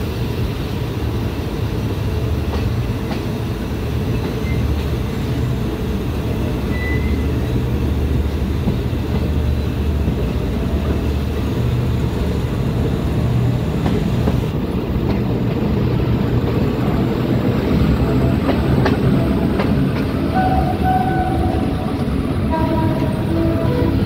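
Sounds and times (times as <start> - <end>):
train wheels rumbling: 0.0 - 24.0
wheels clacking over rail joints: 13.2 - 24.0.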